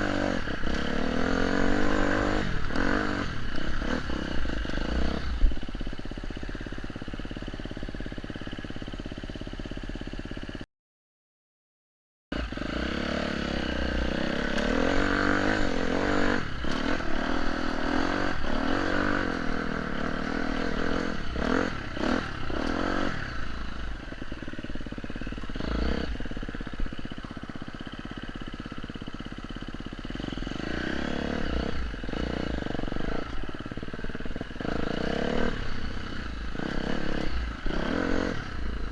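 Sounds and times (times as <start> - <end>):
motorcycle engine revving: 0.0 - 10.6, 12.3 - 38.9.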